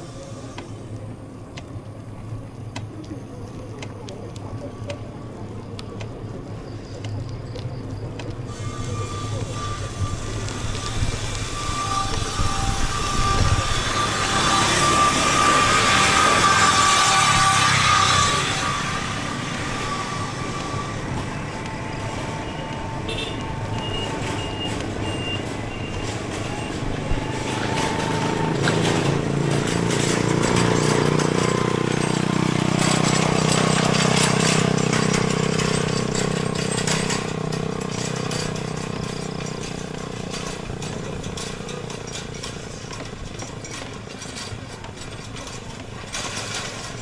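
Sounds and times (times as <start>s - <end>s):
road noise: 0.0s - 47.0s
vehicle engine passing: 26.0s - 41.5s.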